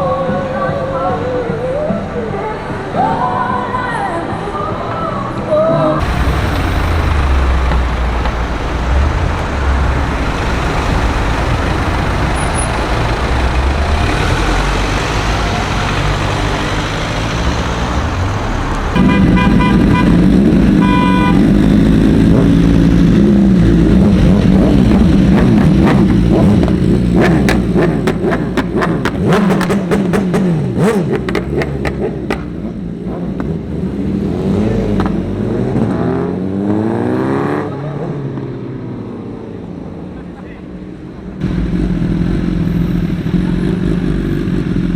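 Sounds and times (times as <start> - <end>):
street traffic: 0.0 - 44.9
car horn toots: 6.0 - 21.7
car engine running: 6.0 - 33.7.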